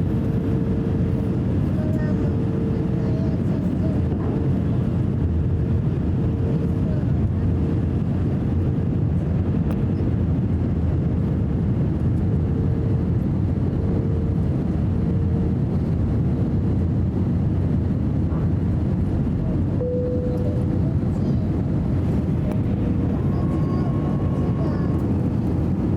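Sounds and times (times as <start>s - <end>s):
airliner engines and airflow rumble: 0.0s - 25.9s
faint steady hum: 19.8s - 25.9s.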